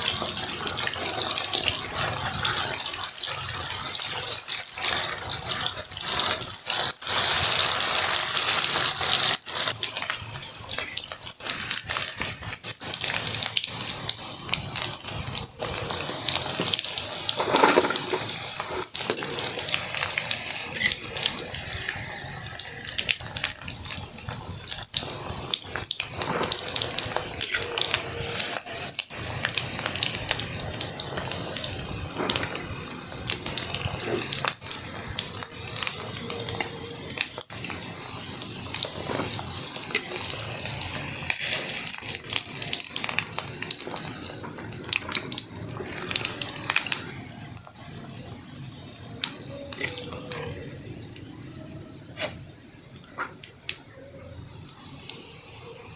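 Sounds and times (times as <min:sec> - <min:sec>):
heavy rain with crackles: 0:18.8 - 0:51.9.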